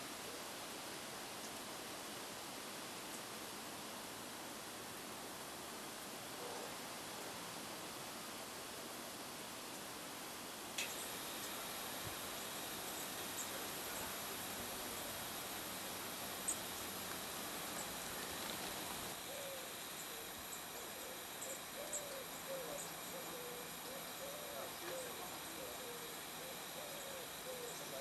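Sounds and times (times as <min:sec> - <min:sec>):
steady hiss: 0:00.0 - 0:28.0
small birds chirping: 0:10.8 - 0:14.2, 0:16.4 - 0:28.0
bird hooting low: 0:19.0 - 0:28.0.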